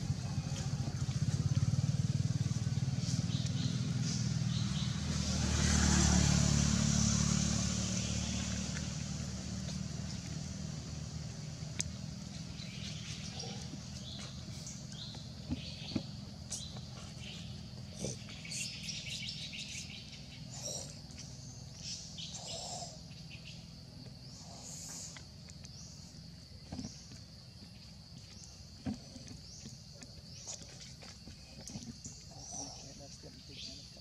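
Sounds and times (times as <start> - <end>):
steady low rumble: 0.0 - 5.4
birds chirping: 0.0 - 6.3, 7.5 - 34.0.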